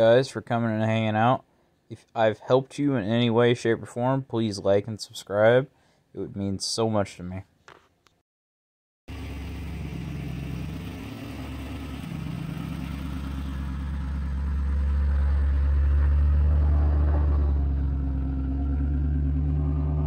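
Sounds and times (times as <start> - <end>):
car engine idling: 9.1 - 20.0.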